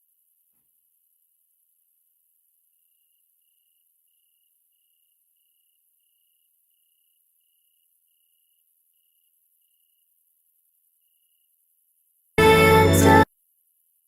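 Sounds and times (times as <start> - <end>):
faint pulsing high tone: 12.4 - 13.3.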